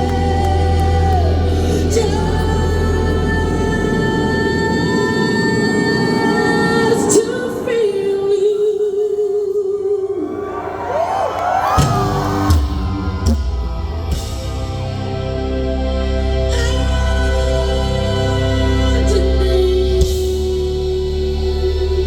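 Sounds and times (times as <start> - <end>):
audience whooping and cheering: 9.8 - 14.9
rock band playing: 11.6 - 21.0.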